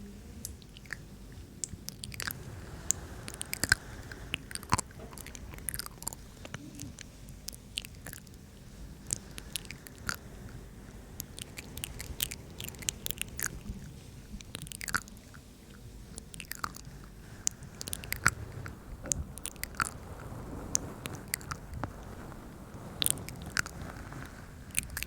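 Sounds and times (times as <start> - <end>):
wet mouth clicks and smacks: 14.4 - 15.4, 17.5 - 18.4.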